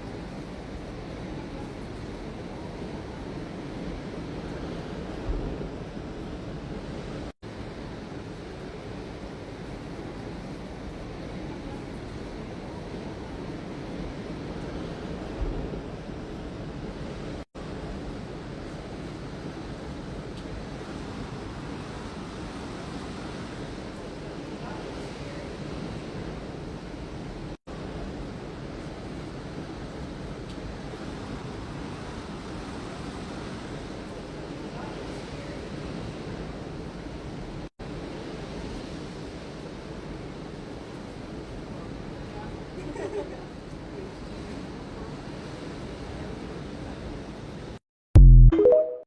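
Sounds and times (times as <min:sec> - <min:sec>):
ocean surf: 0:00.0 - 0:30.1.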